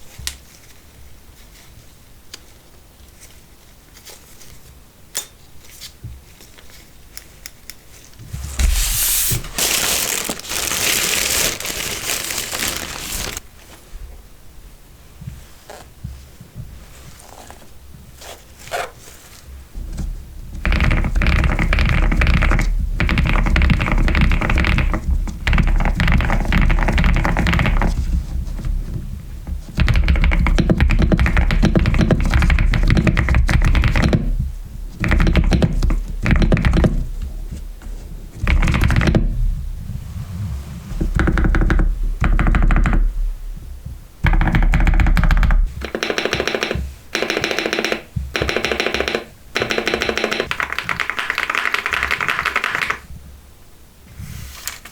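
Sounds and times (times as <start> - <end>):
typing on mechanical keyboard: 20.6 - 28.2, 29.6 - 37.1, 38.4 - 39.2, 44.2 - 53.1.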